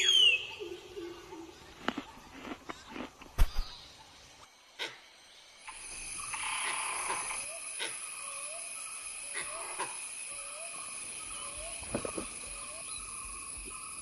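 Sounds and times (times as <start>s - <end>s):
high insect drone: 3.7s - 14.0s.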